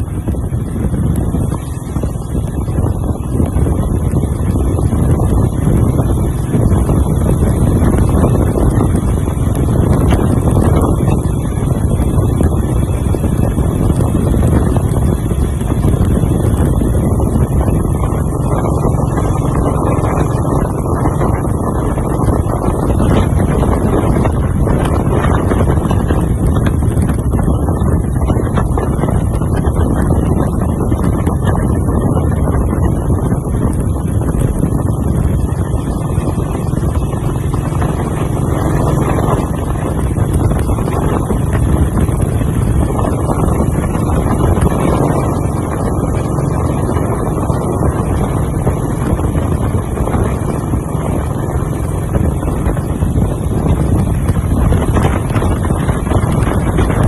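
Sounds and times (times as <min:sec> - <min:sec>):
motorcycle engine running: 0:00.0 - 0:57.0
wind rumble on microphone: 0:00.0 - 0:57.0.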